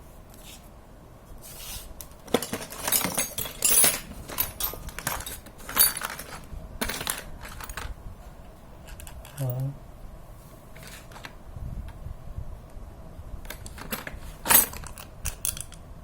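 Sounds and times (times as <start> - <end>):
small metal parts clinking: 2.2 - 7.9, 8.8 - 9.6, 13.5 - 15.8.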